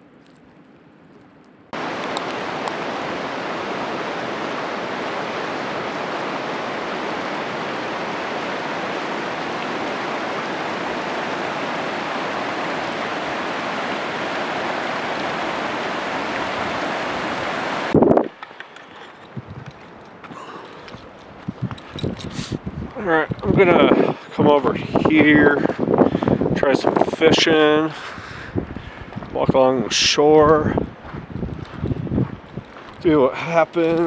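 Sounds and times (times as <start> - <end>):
strong wind rushing: 1.8 - 18.4, 19.2 - 19.8, 21.3 - 33.1
choppy lake water: 1.8 - 34.0.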